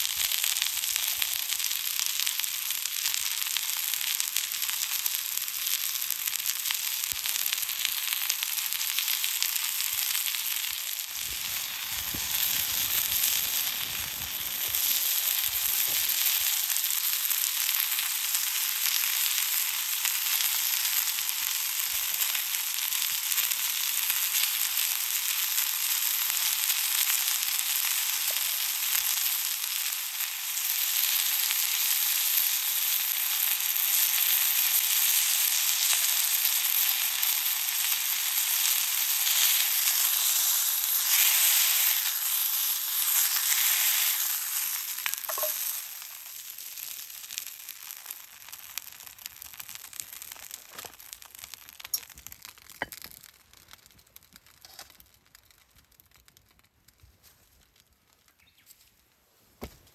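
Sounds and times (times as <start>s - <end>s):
food sizzling in a pan: 0.0s - 53.3s
faint crackles and ticks: 0.0s - 59.9s.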